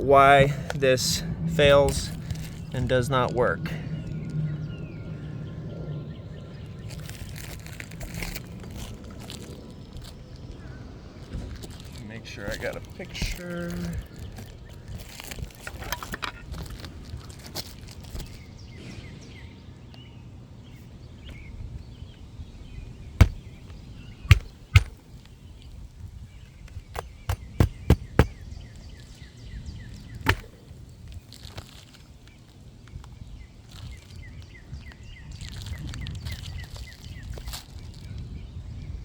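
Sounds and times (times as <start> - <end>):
hammer striking roofing nails: 23.2 - 23.5, 24.3 - 25.0, 27.0 - 28.3, 30.3 - 30.5.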